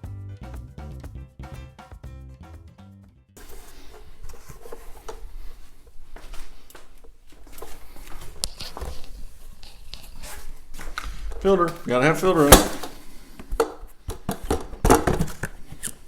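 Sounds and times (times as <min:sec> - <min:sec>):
background music: 0:00.0 - 0:03.4
plastic vacuum parts clicking: 0:10.8 - 0:16.0.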